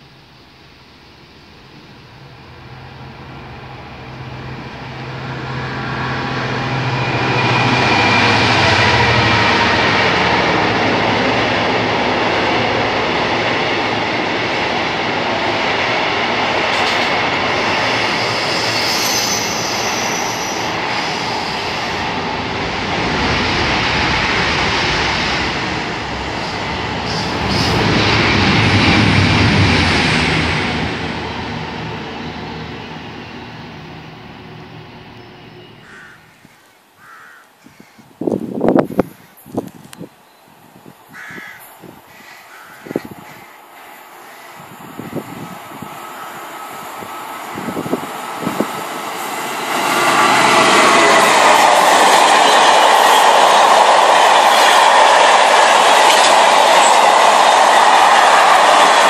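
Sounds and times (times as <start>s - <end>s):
freight train rumble and clatter: 1.4s - 36.5s, 37.7s - 59.0s
high wheel squeal: 17.4s - 22.4s.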